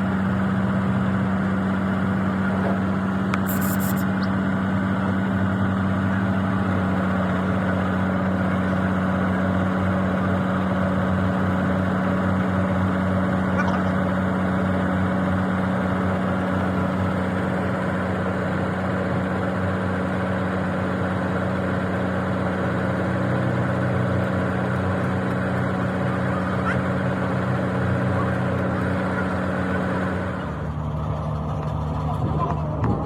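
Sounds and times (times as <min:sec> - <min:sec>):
machine motor humming: 0:02.8 - 0:04.4, 0:12.8 - 0:30.6.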